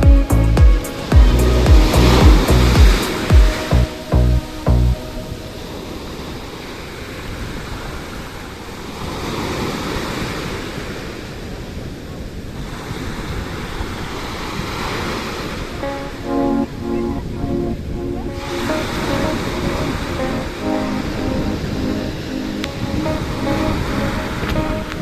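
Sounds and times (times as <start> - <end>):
music notes: 0.0 - 5.9, 15.8 - 25.0
wind on microphone: 0.0 - 6.7
waves washing onto shore: 0.1 - 16.1.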